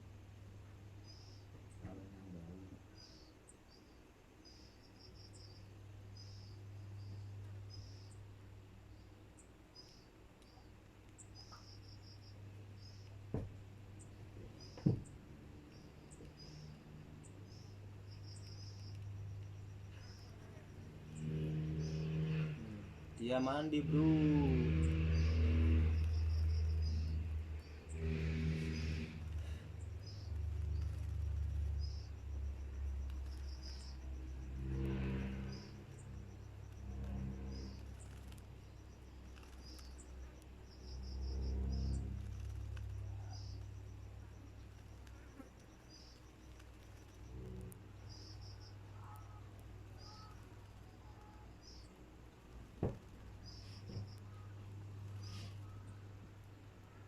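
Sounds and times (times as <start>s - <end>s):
low steady hum: 0.0s - 57.0s
small bird chirping: 0.6s - 57.0s
insect-like ticking trill: 2.9s - 8.2s, 14.0s - 57.0s
deep engine drone: 11.4s - 57.0s
bird giving high chirps: 48.3s - 51.8s.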